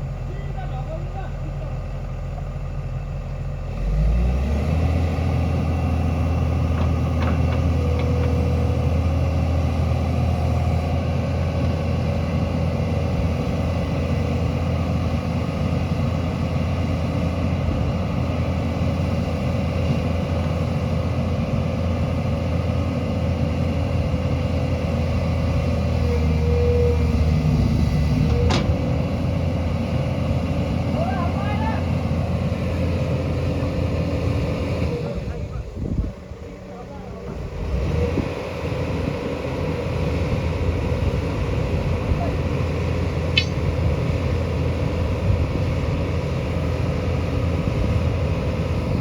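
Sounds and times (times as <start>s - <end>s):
diesel engine running: 0.0s - 49.0s
sharp click: 43.4s - 43.7s.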